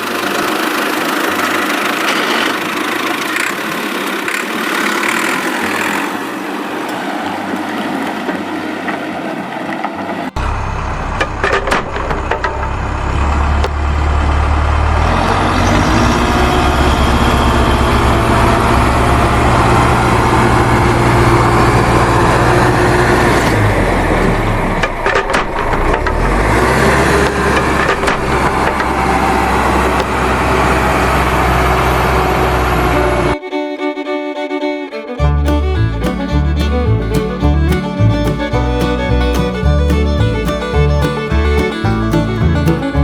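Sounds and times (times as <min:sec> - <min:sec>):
tractor clatter: 0:00.0 - 0:06.2, 0:10.4 - 0:33.3, 0:35.4 - 0:43.0
small tractor motor running: 0:00.0 - 0:06.6, 0:10.4 - 0:33.4, 0:35.2 - 0:43.0
fiddle music: 0:32.3 - 0:43.0.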